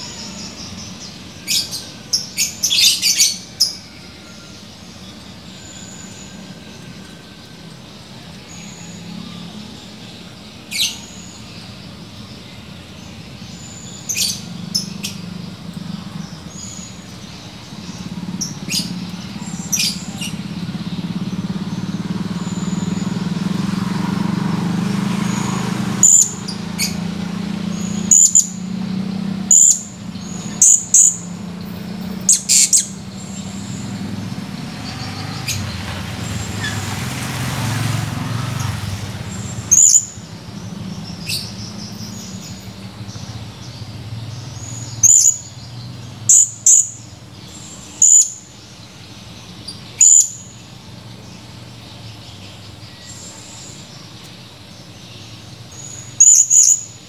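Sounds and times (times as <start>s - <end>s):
parrot chirping: 26.0s - 27.0s, 27.8s - 28.6s, 29.5s - 31.3s, 32.2s - 33.0s, 39.7s - 40.2s, 45.0s - 45.5s, 46.3s - 47.0s, 48.0s - 48.4s, 56.0s - 56.9s.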